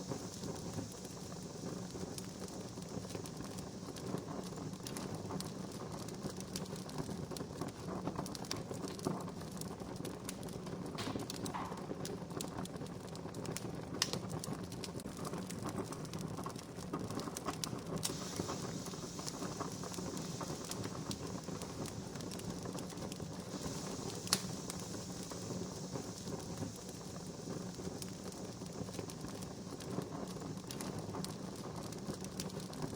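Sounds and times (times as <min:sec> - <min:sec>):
campfire crackling: 0:00.0 - 0:32.9
sharp fire pop: 0:10.9 - 0:12.4, 0:18.0 - 0:28.1.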